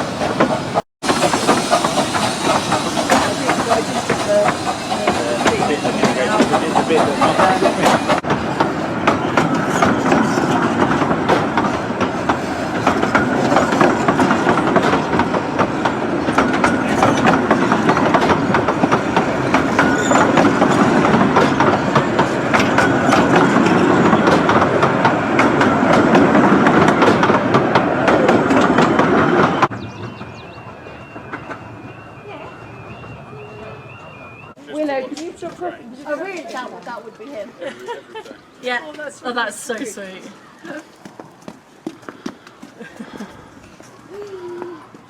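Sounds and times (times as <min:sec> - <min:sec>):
train wheels clacking over rail joints: 0:00.0 - 0:32.0
train rolling rumble: 0:00.0 - 0:34.6.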